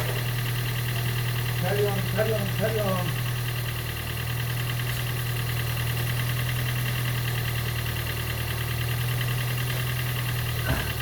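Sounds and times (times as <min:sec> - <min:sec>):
car engine cranking: 0:08.7 - 0:11.0.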